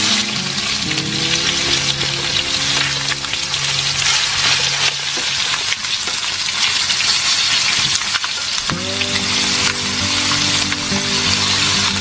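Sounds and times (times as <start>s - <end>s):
chicken frying in hot oil: 0.0s - 12.0s.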